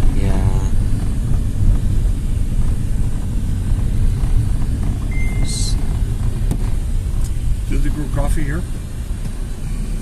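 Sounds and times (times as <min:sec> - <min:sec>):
road vehicle rumble: 0:00.0 - 0:10.0
high beep: 0:05.0 - 0:05.8.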